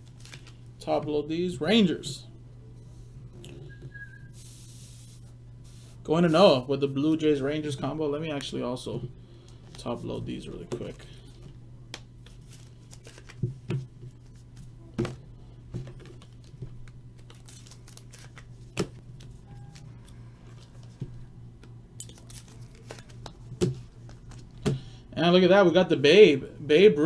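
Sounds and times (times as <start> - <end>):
low steady hum: 0.0 - 27.0
cards clicking and rustling: 0.1 - 0.6, 12.0 - 14.7, 15.8 - 24.8.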